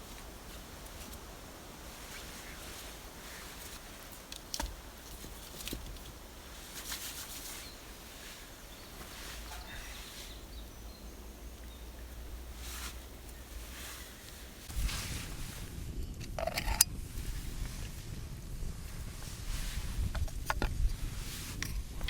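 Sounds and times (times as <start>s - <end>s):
steady low rumble: 7.8s - 22.0s.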